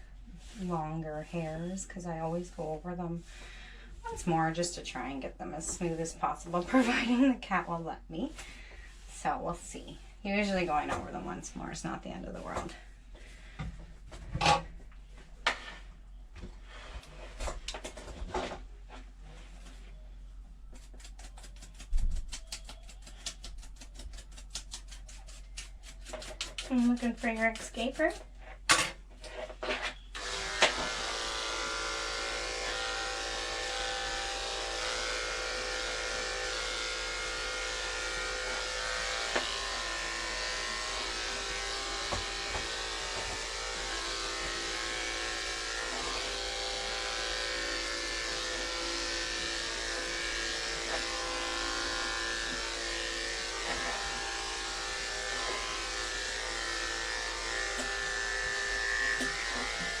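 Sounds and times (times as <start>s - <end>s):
electric clippers running: 30.1s - 60.0s.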